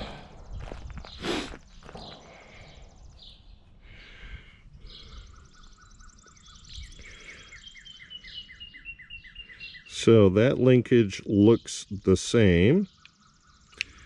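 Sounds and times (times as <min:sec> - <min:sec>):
songbird trill: 0:00.0 - 0:14.0
quick repeated bird chirps: 0:12.8 - 0:14.0.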